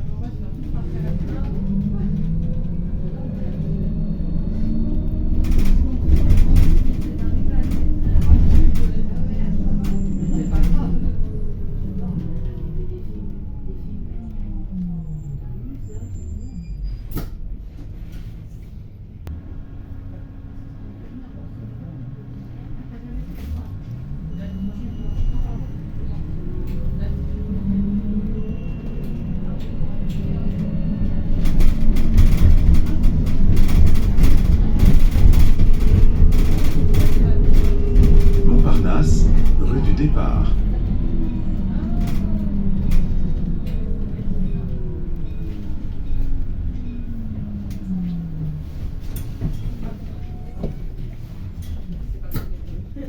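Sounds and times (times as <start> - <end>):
bus motor and road rumble: 0.0 - 53.0
bus fittings rattling: 5.2 - 11.0, 28.8 - 39.8.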